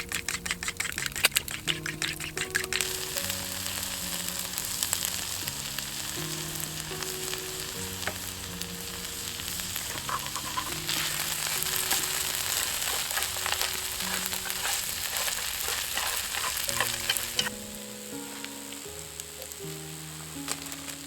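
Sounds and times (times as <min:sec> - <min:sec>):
food sizzling in a pan: 0:00.0 - 0:21.0
soft background music: 0:00.0 - 0:21.0.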